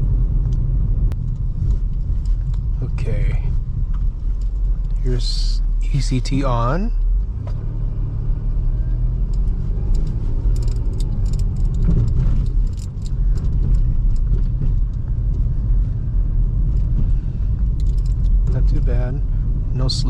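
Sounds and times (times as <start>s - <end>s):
car engine pulling away: 0.0s - 20.0s
rumble of tyres on road: 0.0s - 20.0s.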